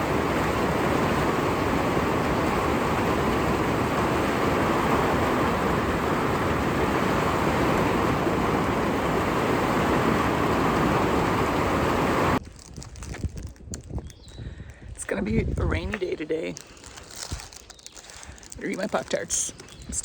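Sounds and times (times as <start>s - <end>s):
heavy rain: 0.0s - 12.4s
wind: 0.0s - 20.0s.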